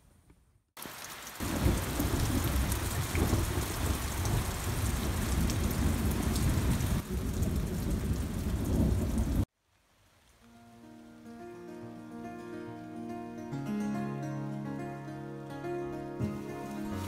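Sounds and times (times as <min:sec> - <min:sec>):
heavy rain pouring: 0:00.8 - 0:10.4
deep thunder rumble: 0:01.4 - 0:09.5.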